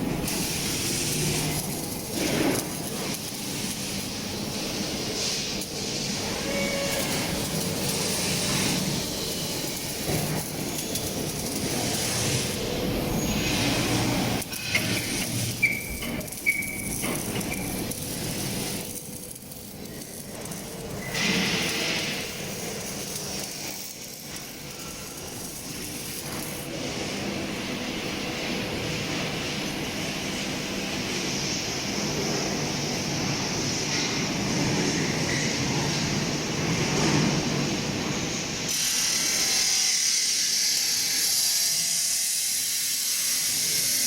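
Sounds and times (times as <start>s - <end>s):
workshop hiss and hum: 0.0s - 44.0s.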